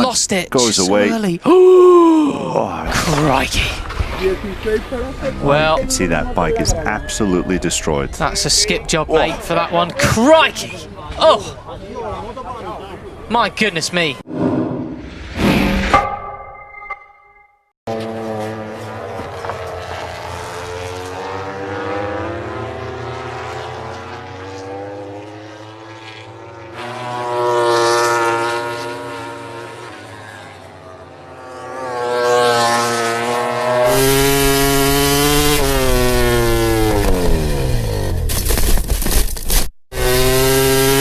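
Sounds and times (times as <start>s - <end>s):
racing motorcycle engines: 2.6s - 13.4s, 17.9s - 38.2s, 40.0s - 41.0s
motorcycle passing by: 17.9s - 38.2s, 40.0s - 41.0s.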